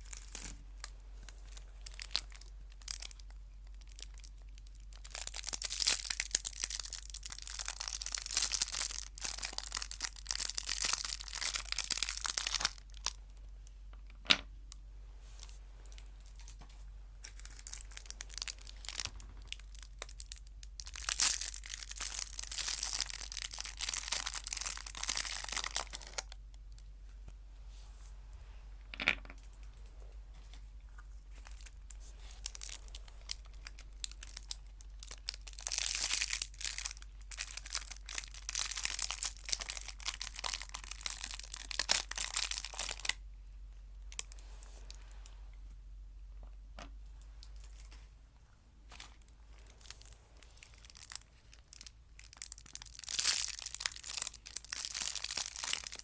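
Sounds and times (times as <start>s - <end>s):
wrapper crinkling and tearing: 0.0s - 13.2s, 17.2s - 26.4s, 31.3s - 43.2s, 48.9s - 56.0s.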